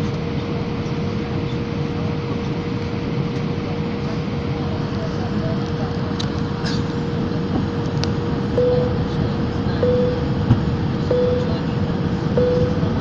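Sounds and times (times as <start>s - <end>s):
engine and airflow roar: 0.0s - 13.0s
mid-pitched hum: 7.1s - 13.0s.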